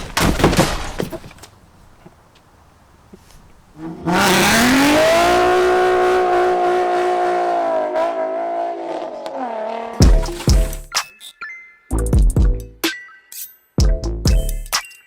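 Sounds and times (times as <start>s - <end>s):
car engine revving: 2.0s - 10.8s.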